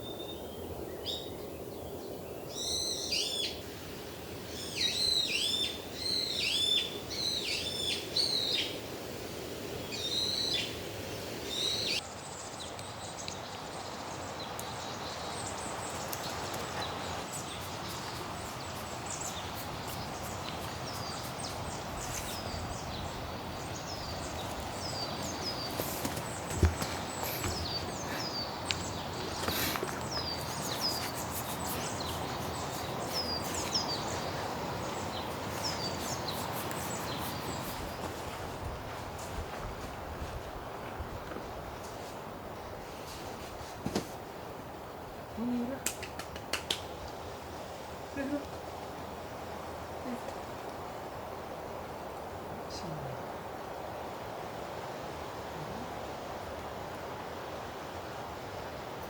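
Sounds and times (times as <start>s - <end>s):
songbird chirping: 0.0s - 8.8s, 9.7s - 39.9s
steady hiss: 0.0s - 59.0s
steady rushing noise: 16.4s - 41.1s.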